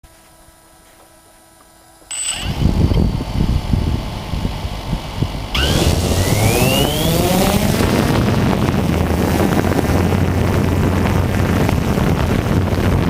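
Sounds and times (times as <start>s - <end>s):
small motor spinning up: 2.1s - 8.7s
loud rumbling noise: 2.2s - 13.0s.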